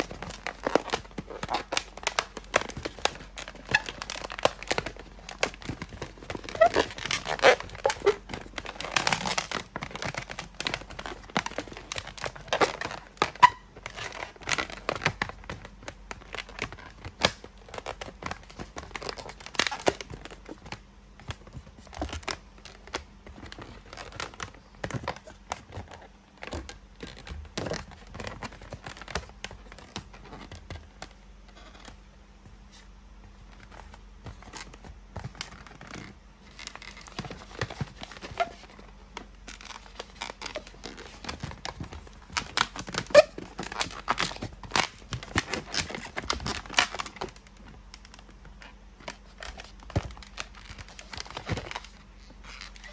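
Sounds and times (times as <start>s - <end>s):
rubber balloon rubbing and crackling: 0.0s - 15.5s, 33.6s - 47.4s
balloon squeaks: 6.4s - 8.3s, 13.2s - 14.1s, 42.8s - 44.3s.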